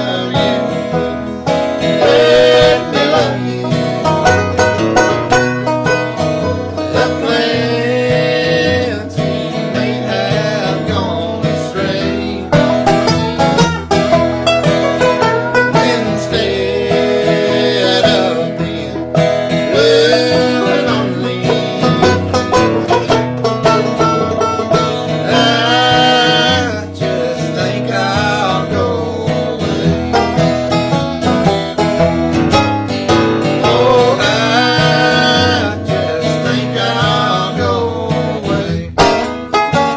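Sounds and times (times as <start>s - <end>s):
banjo rolls: 0.0s - 39.9s
guitar bass line: 0.0s - 39.9s.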